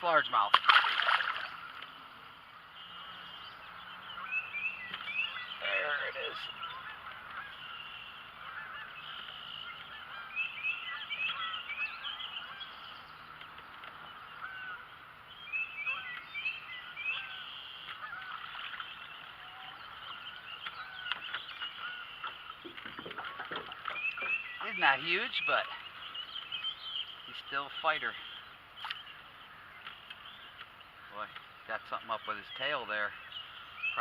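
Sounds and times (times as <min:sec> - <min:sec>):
birds chorus calling: 0:00.0 - 0:34.0.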